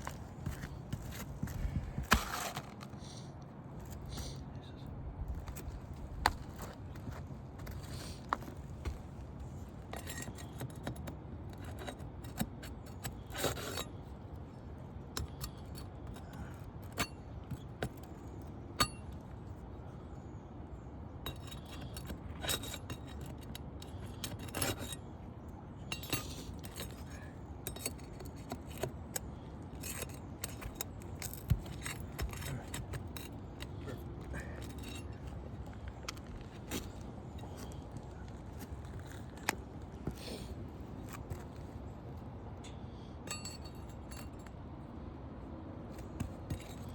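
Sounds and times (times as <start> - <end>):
clicks and scrapes on roof: 0.0 - 3.2, 5.3 - 14.2, 21.3 - 25.0, 26.0 - 41.7, 46.0 - 46.9
light metallic clinks: 42.6 - 44.6.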